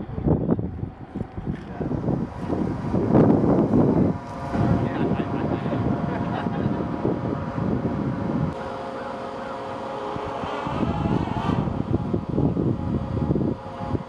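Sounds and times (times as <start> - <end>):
wind on microphone: 0.0 - 8.8, 9.6 - 14.0
distant rocket launch rumble: 0.0 - 14.0.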